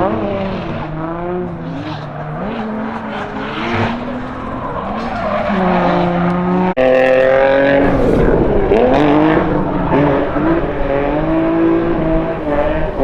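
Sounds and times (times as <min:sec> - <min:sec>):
car engine revving: 0:00.0 - 0:13.0
tire skid noise: 0:00.0 - 0:13.0.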